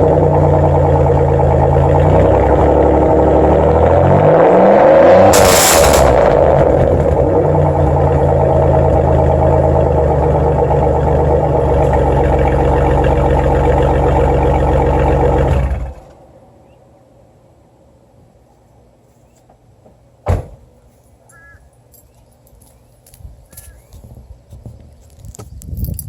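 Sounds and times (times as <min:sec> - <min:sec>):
car engine revving and idling: 0:00.0 - 0:16.2.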